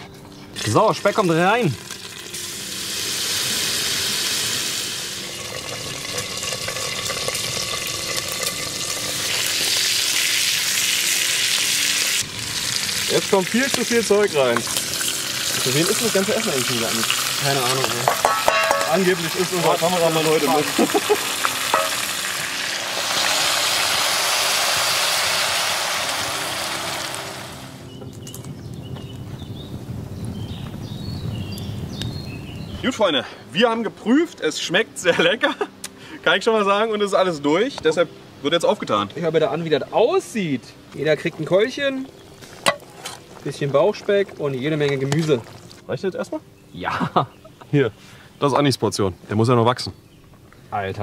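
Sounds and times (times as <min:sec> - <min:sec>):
bacon sizzling in hot fat: 0:00.6 - 0:27.9, 0:41.0 - 0:46.2.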